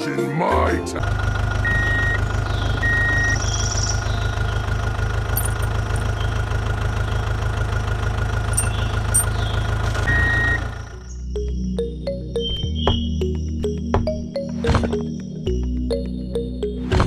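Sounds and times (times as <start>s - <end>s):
engine idling: 1.0s - 11.6s
short electronic beep: 10.1s - 10.7s.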